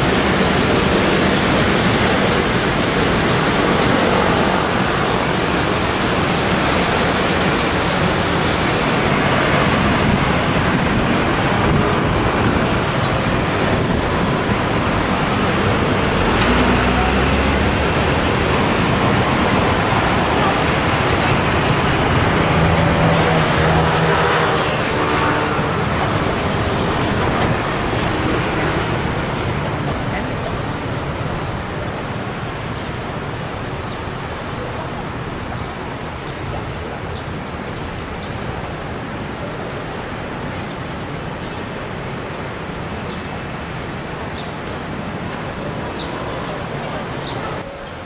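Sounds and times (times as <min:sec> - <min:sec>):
city road traffic: 0:00.0 - 0:48.0
low vehicle rumble passing: 0:09.0 - 0:32.6.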